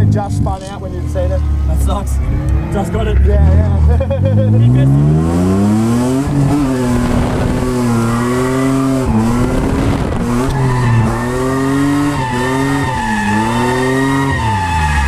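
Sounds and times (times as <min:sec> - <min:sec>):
car engine revving high: 0:00.0 - 0:15.0
tyres squealing and skidding: 0:06.6 - 0:15.0.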